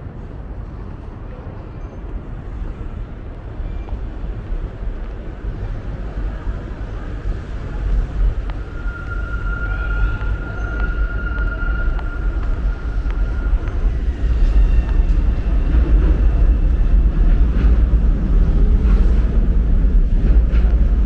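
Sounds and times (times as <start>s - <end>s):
steady low rumble: 0.0s - 21.0s
steady high-pitched tone: 7.5s - 15.6s.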